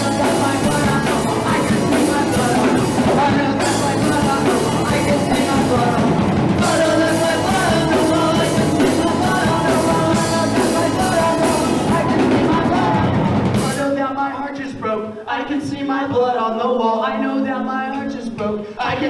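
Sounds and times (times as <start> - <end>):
punk rock band playing live: 0.0 - 14.0.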